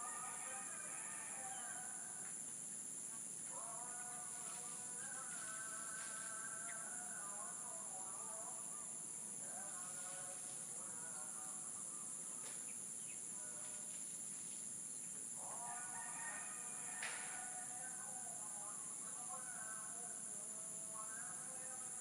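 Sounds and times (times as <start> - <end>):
high-pitched insect chorus: 0.0 - 22.0
lower insect calls: 0.0 - 22.0.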